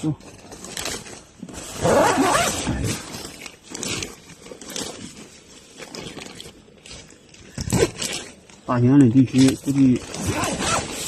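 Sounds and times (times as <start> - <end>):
tent fabric rustling: 0.0 - 11.0
tent zipper being pulled: 0.7 - 7.0, 9.4 - 11.0.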